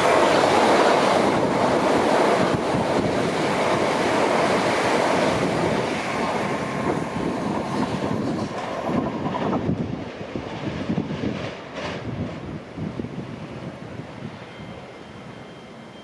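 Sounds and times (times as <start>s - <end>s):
train wheel and track noise: 0.0s - 16.0s.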